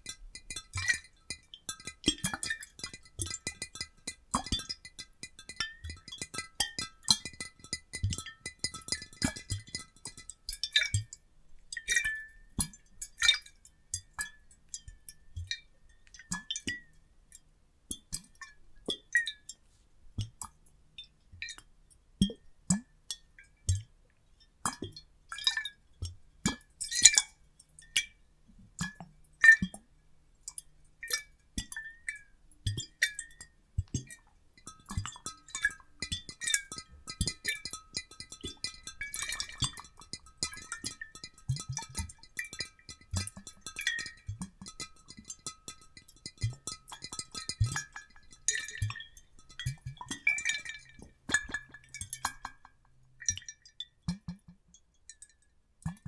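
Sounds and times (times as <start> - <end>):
water sloshing in glass bottles: 31.0 - 56.0.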